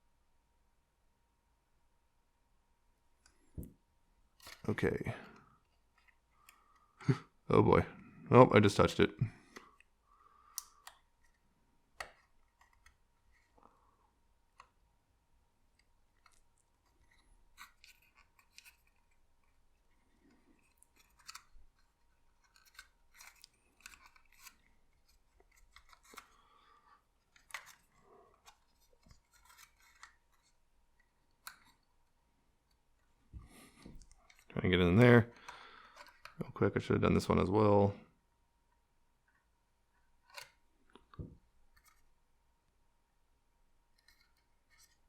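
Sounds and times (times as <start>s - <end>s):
paper rustles and ticks: 15.7s - 31.9s.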